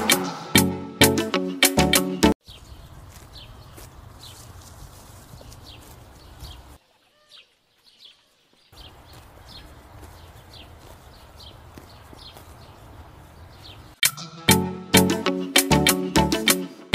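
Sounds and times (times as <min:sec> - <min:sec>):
birds chirping: 0:02.4 - 0:04.6, 0:05.2 - 0:14.0.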